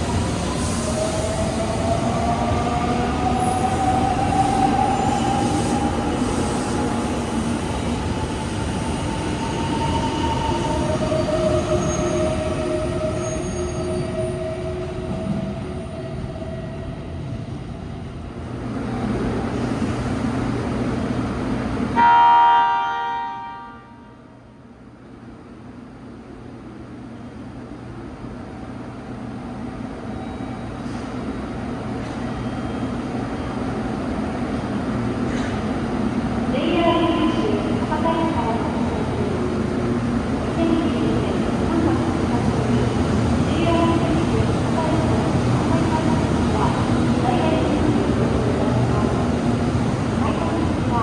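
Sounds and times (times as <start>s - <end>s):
train horn blast: 22.0s - 24.3s.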